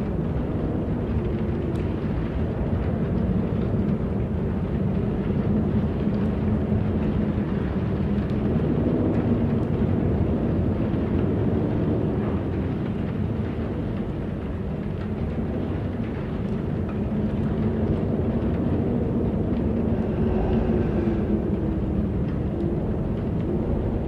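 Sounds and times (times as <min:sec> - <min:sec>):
wind blowing: 0:15.7 - 0:24.0.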